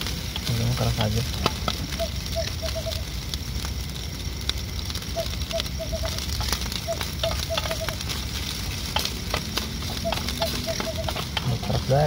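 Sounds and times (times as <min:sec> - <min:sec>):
rice sizzling in a metal pan: 0:00.0 - 0:12.0
animal chirping: 0:01.5 - 0:03.2, 0:05.0 - 0:08.2, 0:08.9 - 0:12.0.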